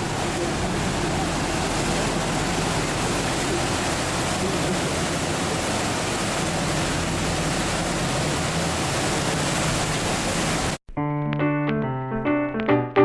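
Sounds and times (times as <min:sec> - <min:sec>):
rushing noise on moving boat: 0:00.0 - 0:10.8
electric piano music: 0:10.9 - 0:13.0.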